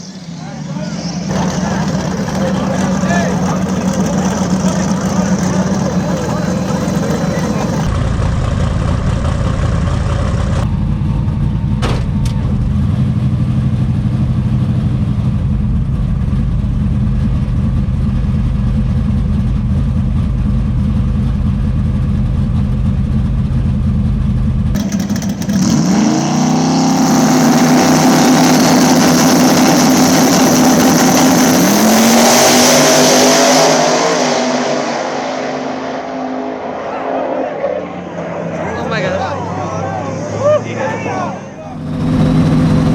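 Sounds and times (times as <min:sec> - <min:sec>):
race engines accelerating hard: 0:00.0 - 0:11.2, 0:24.8 - 0:42.9
drag car engine rumbling: 0:00.0 - 0:42.9.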